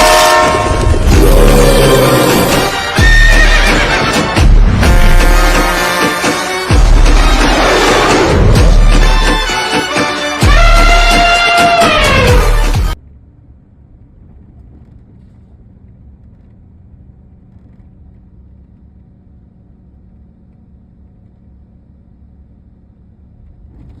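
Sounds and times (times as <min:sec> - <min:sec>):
road vehicle rumble: 0:00.0 - 0:24.0
faint steady hum: 0:13.0 - 0:24.0.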